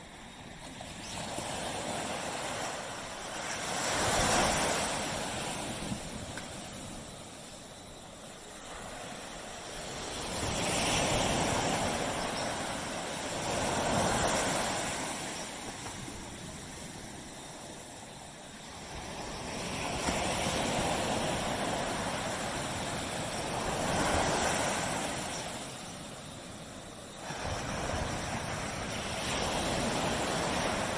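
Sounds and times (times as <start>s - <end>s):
waves washing on beach: 0.0s - 30.9s.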